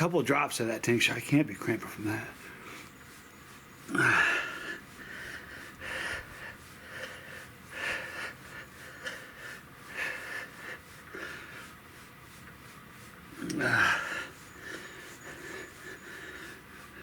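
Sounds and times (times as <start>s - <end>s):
exercise bike pedalling: 0.0s - 17.0s
man breathing hard: 3.8s - 17.0s.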